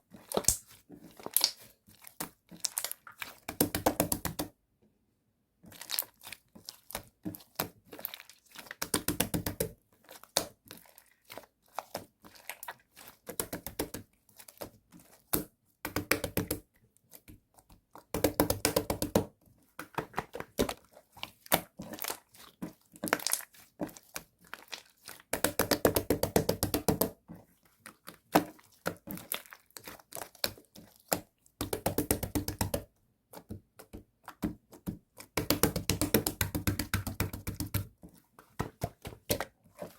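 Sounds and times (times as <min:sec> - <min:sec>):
slime clicking and crackling: 0:00.2 - 0:04.4, 0:21.3 - 0:27.1.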